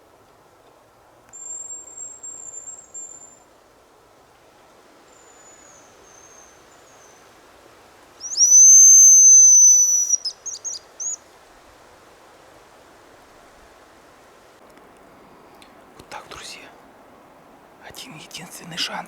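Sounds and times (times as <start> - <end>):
high whistle of grouse decoy call: 8.2 - 11.2
fainter high whistle dropping in pitch: 8.3 - 10.2.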